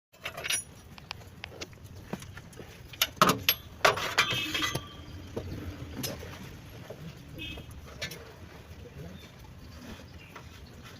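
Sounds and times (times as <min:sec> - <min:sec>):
metal tools clinking: 0:00.2 - 0:00.9, 0:02.9 - 0:05.1.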